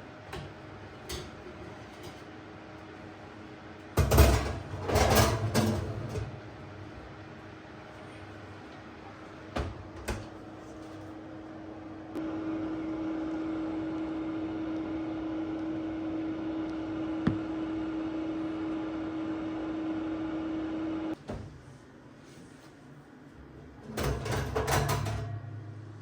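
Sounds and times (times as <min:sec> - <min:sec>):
microwave oven humming: 0:00.0 - 0:26.0.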